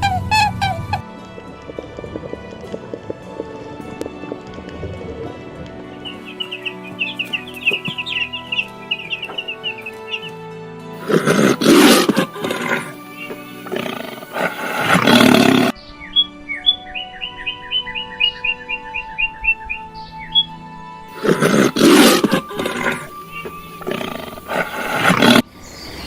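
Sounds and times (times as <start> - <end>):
small birds chirping: 0.0 - 10.4, 11.0 - 26.0
background music: 0.0 - 26.0
big cat roaring: 11.0 - 15.7, 21.2 - 25.4.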